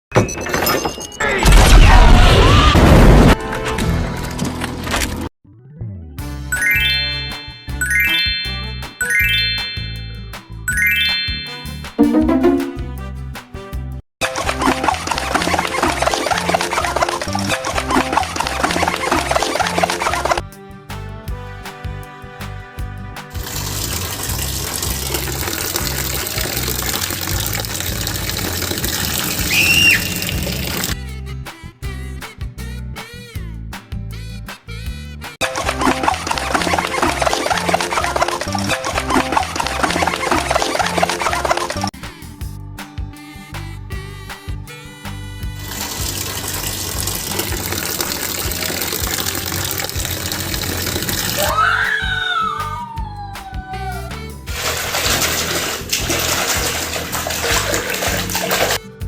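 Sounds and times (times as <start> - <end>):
music beat: 6.6 - 13.6, 31.0 - 37.4, 42.0 - 47.8, 53.9 - 59.0
gushing water: 14.2 - 20.4, 23.3 - 31.0, 35.4 - 41.9, 45.6 - 51.5, 54.5 - 58.8.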